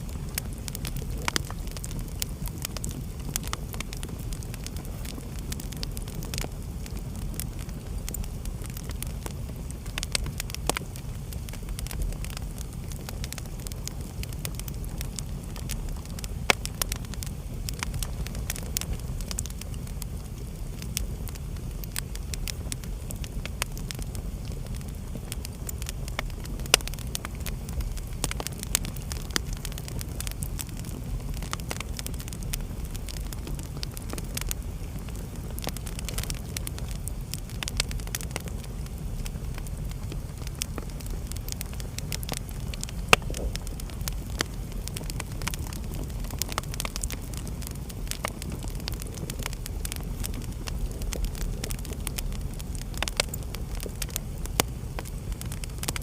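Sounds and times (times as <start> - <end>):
loud pops of burning wood: 0.0 - 56.0
low fire rumble: 0.0 - 56.0
wood fire crackling: 0.0 - 56.0.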